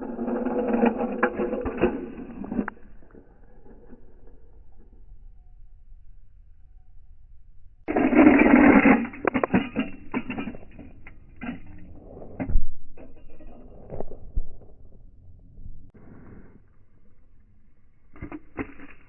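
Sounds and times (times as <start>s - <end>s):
toy cars crashing and clattering: 7.9s - 11.9s.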